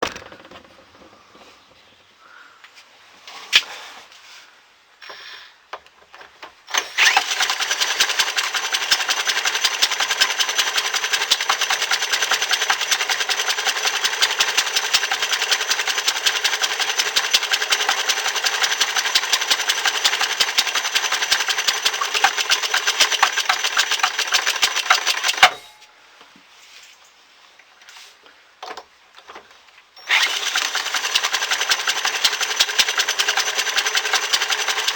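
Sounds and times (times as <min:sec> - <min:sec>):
small gas engine clattering: 0:00.0 - 0:01.6, 0:06.1 - 0:25.8, 0:30.0 - 0:34.9
engine knock: 0:07.0 - 0:25.4, 0:30.1 - 0:34.9.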